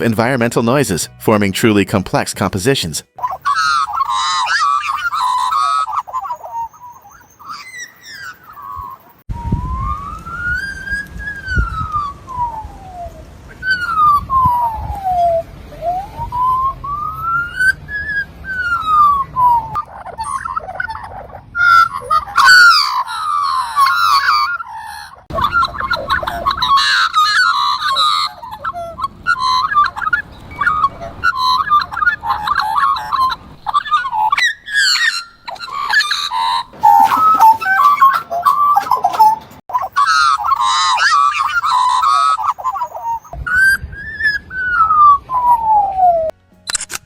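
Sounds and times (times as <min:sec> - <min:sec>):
magpie warbling and whistling: 0:03.2 - 0:46.3.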